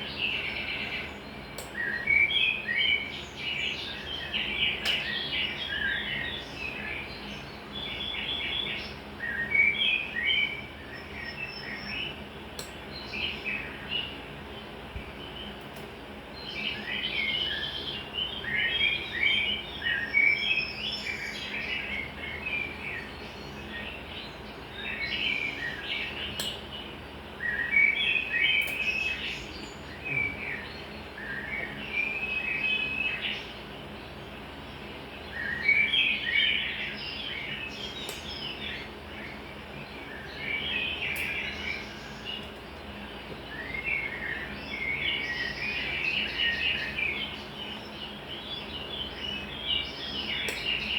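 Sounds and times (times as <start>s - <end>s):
faint steady hum: 0.0s - 50.9s
songbirds chirping: 0.0s - 50.9s
faint sharp clicks: 1.6s - 1.8s, 50.5s - 50.7s.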